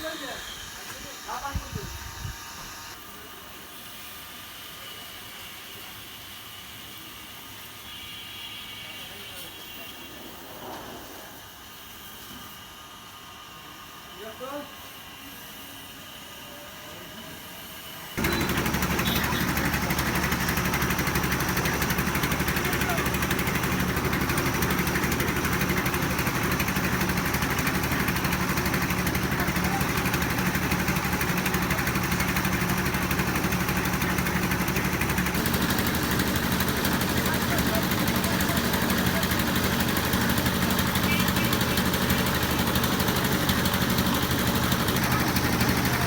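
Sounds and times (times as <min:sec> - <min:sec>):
engine running with fast pulse: 0:18.2 - 0:46.0.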